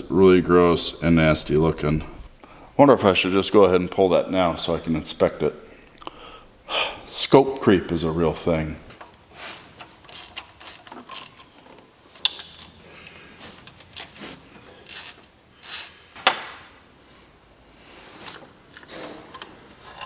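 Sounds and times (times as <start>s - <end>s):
ratchet and scraping noises: 9.3s - 16.1s, 18.8s - 20.0s.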